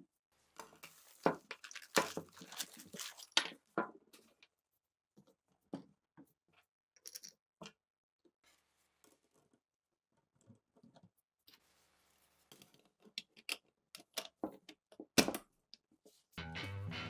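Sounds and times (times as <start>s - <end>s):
clicks and knocks of small parts: 12.5s - 15.8s.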